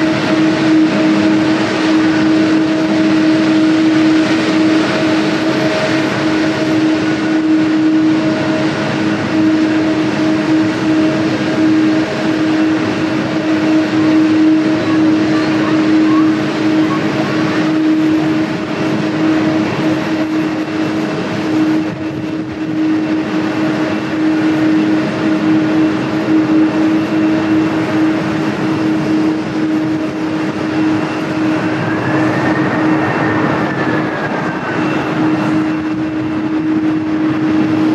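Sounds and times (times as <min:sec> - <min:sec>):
jet engines droning: 0:00.0 - 0:37.9.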